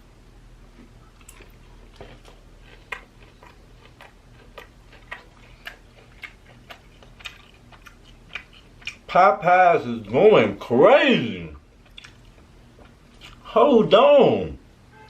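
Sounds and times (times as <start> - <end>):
crunchy chewing: 0.8 - 9.1, 11.5 - 13.5.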